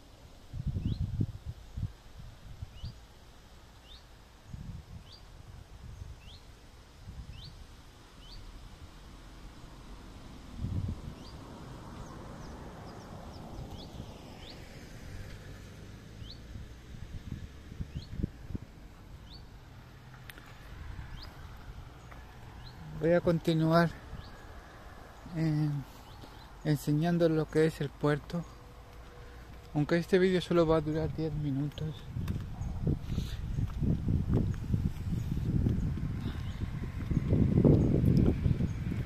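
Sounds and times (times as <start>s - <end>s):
small bird chirping: 3.8s - 5.3s, 5.9s - 6.5s, 7.3s - 7.6s, 8.2s - 8.5s, 12.0s - 14.7s, 16.2s - 16.5s, 17.9s - 18.3s, 19.2s - 19.6s, 24.0s - 27.7s
low rumbling microphone bumps: 30.8s - 39.0s.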